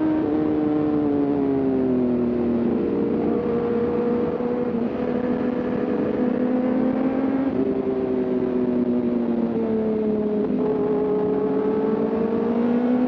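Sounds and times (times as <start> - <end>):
motorcycle engine running: 2.4 - 12.6.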